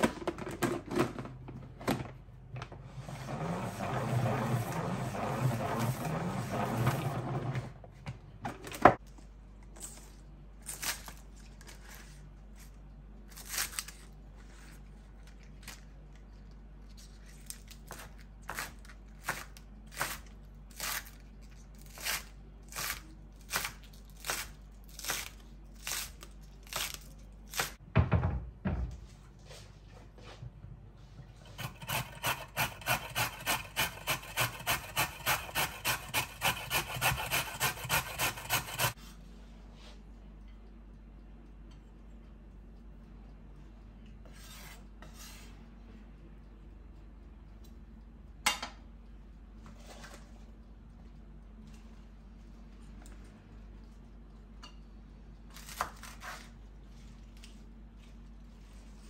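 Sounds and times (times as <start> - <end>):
rubbing or scraping strokes: 2.9 - 7.6, 31.4 - 39.2.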